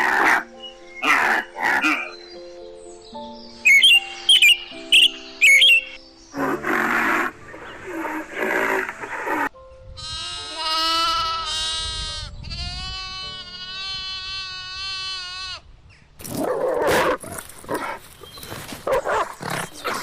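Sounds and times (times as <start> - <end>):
animal bleat-like calls: 8.5 - 15.7
animal rough calls: 16.2 - 20.0.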